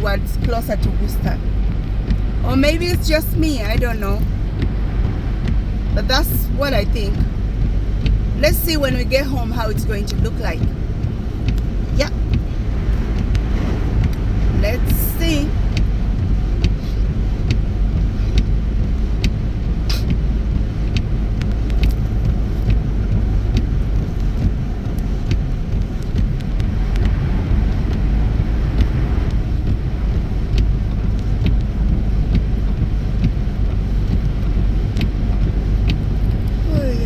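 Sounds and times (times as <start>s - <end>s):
road and tyre rumble: 0.0s - 37.0s
faint ticks: 10.0s - 14.2s.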